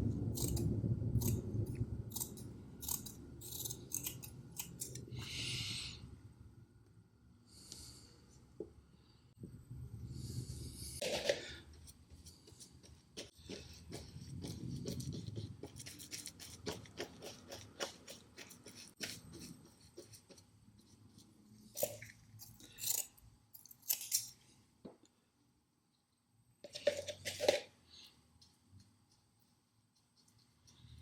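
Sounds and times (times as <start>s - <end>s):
scratching and scraping hand work: 0.3s - 5.2s, 10.8s - 24.5s.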